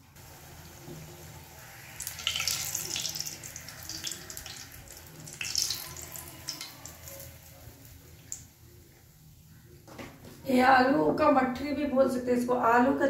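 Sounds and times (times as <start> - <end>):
food frying in hot oil: 0.0 - 9.5.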